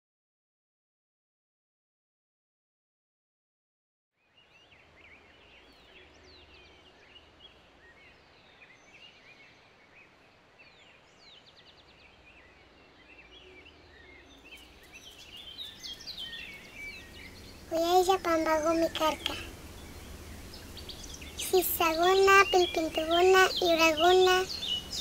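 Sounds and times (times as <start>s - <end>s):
faint steady hiss: 4.2s - 25.0s
birds chirping and calling: 12.4s - 25.0s.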